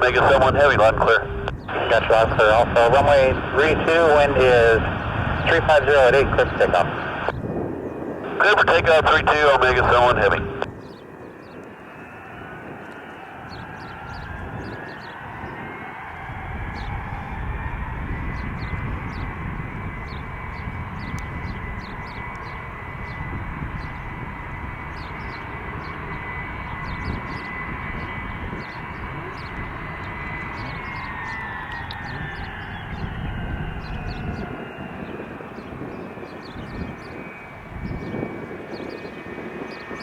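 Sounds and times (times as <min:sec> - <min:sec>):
deep engine rumble: 0:00.0 - 0:07.4, 0:08.1 - 0:10.8
jet engine whine: 0:00.0 - 0:40.0.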